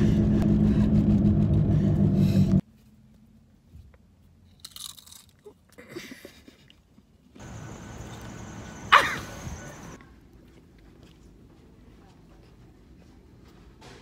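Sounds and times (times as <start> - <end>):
car engine hum: 0.0 - 2.6.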